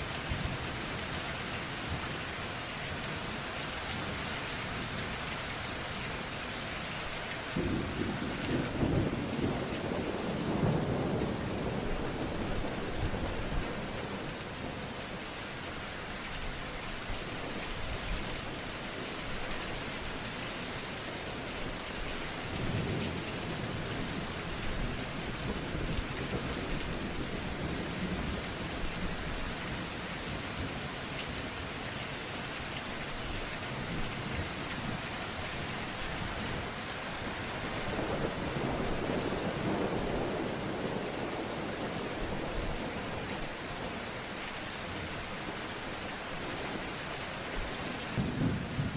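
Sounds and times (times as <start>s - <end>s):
steady rain: 0.0s - 48.9s
low rolling thunder: 7.6s - 13.9s, 48.2s - 48.9s.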